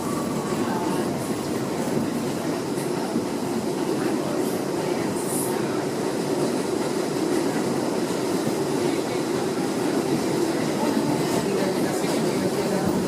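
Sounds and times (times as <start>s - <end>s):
subway train wheels rumbling on rails: 0.0s - 13.0s.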